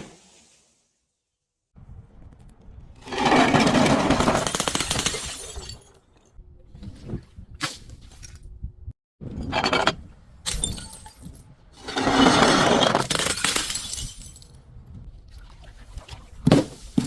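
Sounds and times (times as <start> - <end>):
glass bottle breaking: 4.2 - 6.0, 10.5 - 11.4, 12.9 - 14.5.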